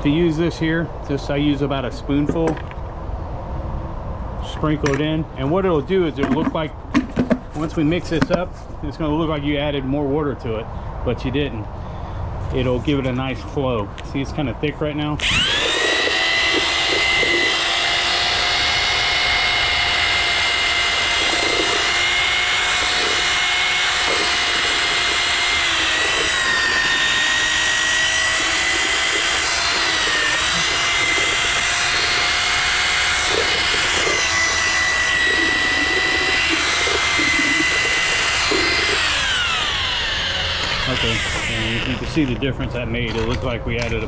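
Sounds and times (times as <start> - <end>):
electric drill mixing concrete: 15.1 - 42.4.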